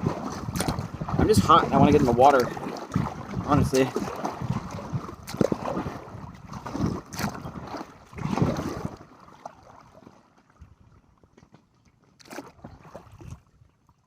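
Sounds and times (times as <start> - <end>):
wind on microphone: 0.0 - 9.1
paddle strokes splashing water: 0.0 - 14.0.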